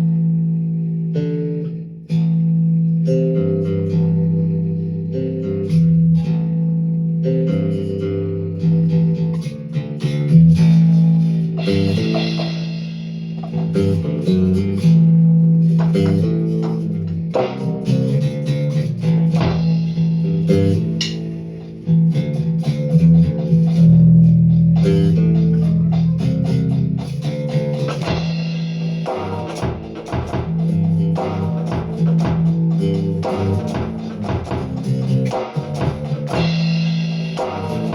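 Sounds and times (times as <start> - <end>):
electric bass riff: 0.0 - 37.9.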